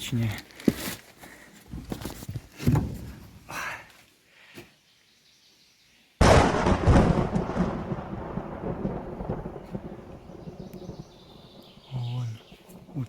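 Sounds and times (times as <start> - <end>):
thunderclap with rolling rumble: 6.2 - 13.0.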